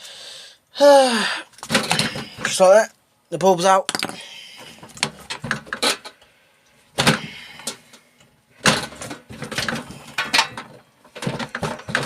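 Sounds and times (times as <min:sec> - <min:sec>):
metal parts clanking and rattling: 0:01.6 - 0:02.7, 0:03.9 - 0:06.2, 0:08.6 - 0:12.0.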